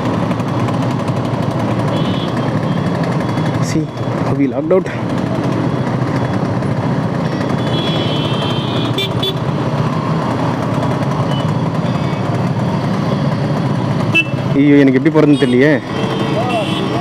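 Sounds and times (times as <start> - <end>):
traffic engines rumbling: 0.0 - 17.0
vehicle horn: 1.9 - 2.4, 7.5 - 9.4, 14.1 - 14.5, 15.3 - 17.0.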